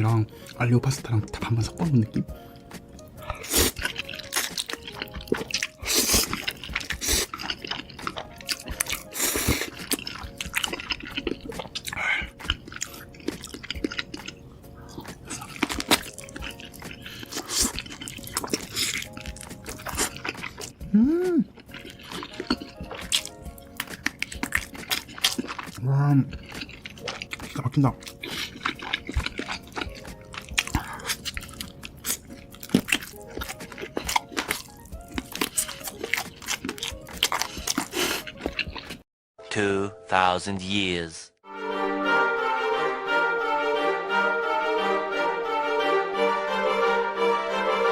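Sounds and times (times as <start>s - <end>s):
wet chewing and smacking: 0.0s - 39.0s.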